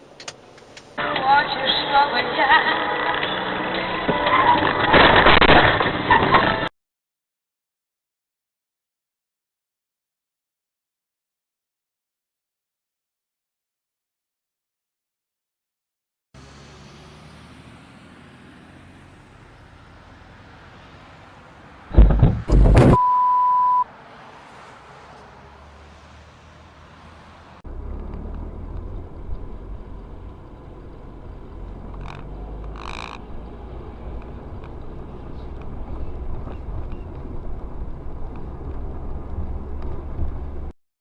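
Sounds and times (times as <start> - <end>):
low vehicle rumble: 16.4 - 23.0, 24.3 - 40.8
brief knocks: 21.9 - 23.0
sudden loud noise: 21.9 - 23.1
high beep: 22.5 - 23.9.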